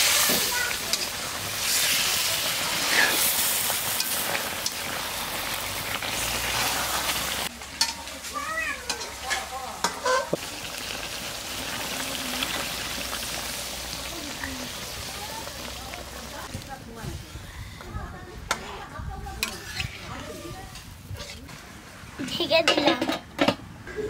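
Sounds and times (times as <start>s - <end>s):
fish sizzling in a pan: 0.0s - 17.4s.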